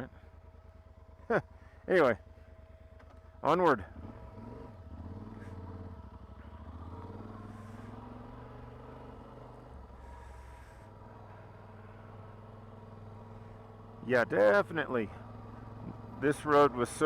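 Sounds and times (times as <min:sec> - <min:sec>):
motorcycle engine riding off: 0:02.3 - 0:17.0.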